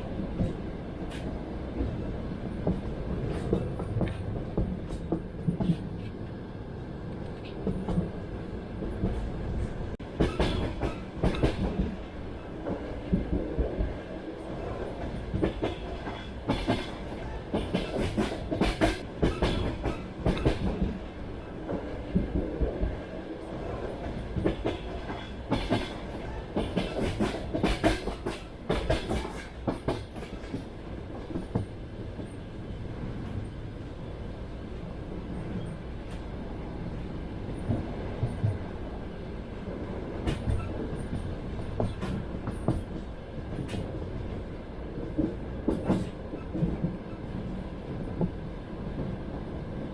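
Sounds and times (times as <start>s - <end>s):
train running rumble: 0.0s - 33.9s
train wheels clacking: 10.0s - 14.0s, 14.7s - 23.1s, 24.0s - 32.4s, 40.2s - 43.9s, 45.0s - 47.1s.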